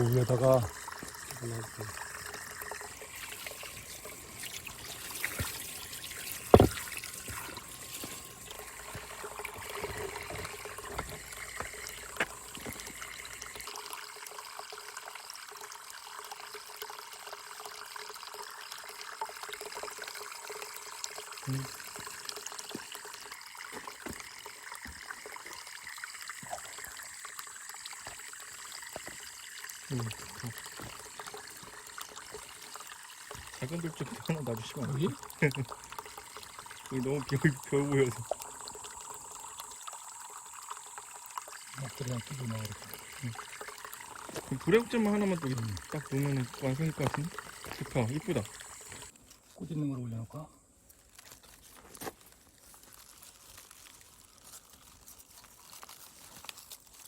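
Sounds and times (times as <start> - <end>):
water trickling over stones: 0.0 - 57.0.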